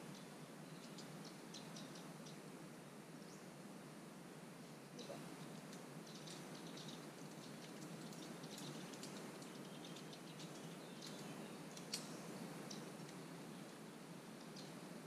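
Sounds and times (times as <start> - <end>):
small birds chirping: 0.0 - 2.5, 4.8 - 15.0
outdoor background hiss: 0.0 - 15.0.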